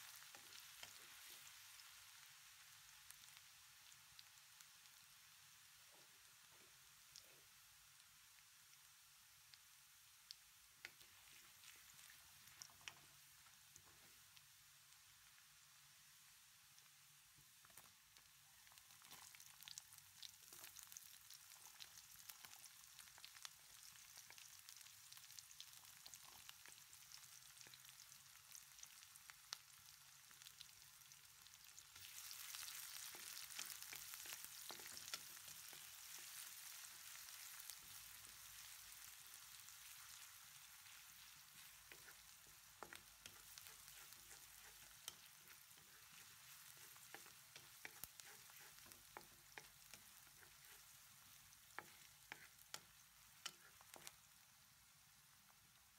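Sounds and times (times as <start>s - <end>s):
onion sizzling in hot oil: 0.0s - 55.9s
wooden spatula scraping a pan: 39.8s - 51.0s, 51.7s - 54.2s.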